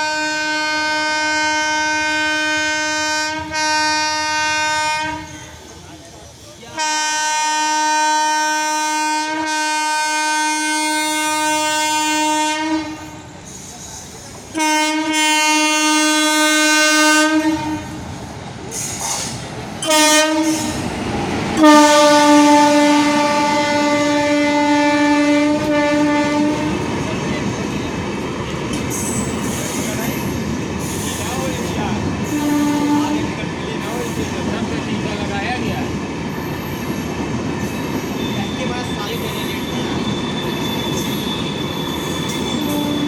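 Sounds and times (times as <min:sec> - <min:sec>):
train horn blasts: 0:00.0 - 0:05.6, 0:06.7 - 0:13.3, 0:14.5 - 0:18.0, 0:19.8 - 0:20.8, 0:21.6 - 0:26.9, 0:32.2 - 0:33.4, 0:39.7 - 0:43.0
train passing with rumble: 0:00.0 - 0:43.0
train wheel clatter: 0:18.6 - 0:22.3, 0:25.5 - 0:43.0.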